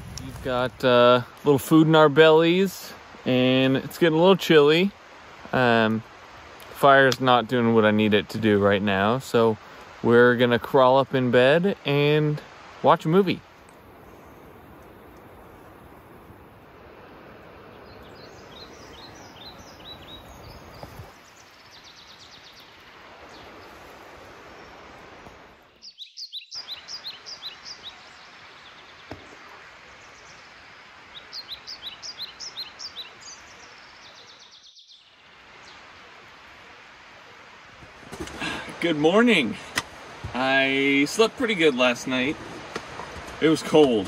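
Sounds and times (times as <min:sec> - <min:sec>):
steady outdoor hiss: 0:00.0 - 0:44.0
small bird chirping: 0:17.7 - 0:23.8, 0:25.7 - 0:29.4, 0:31.1 - 0:35.8.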